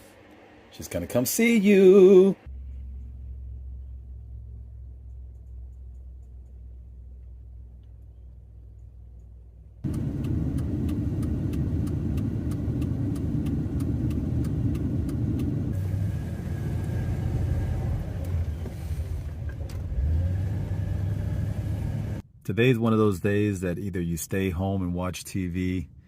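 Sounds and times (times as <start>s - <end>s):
faint low hum: 0.0s - 12.3s
light regular ticking: 4.9s - 15.8s
car driving rumble from inside: 9.8s - 22.2s.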